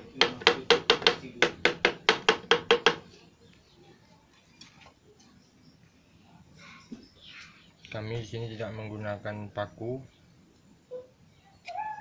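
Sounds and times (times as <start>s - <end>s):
rapid tapping on wood: 0.0s - 3.1s.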